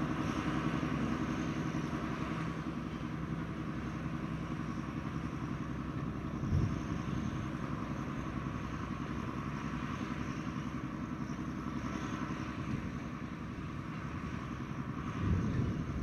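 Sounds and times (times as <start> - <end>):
freight wagon wheels rumbling: 10.6 - 16.0.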